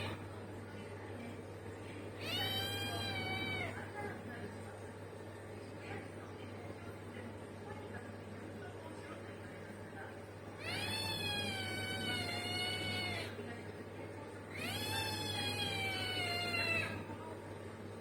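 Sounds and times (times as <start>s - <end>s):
cat meowing: 2.2s - 3.8s, 10.6s - 13.4s, 14.5s - 17.0s.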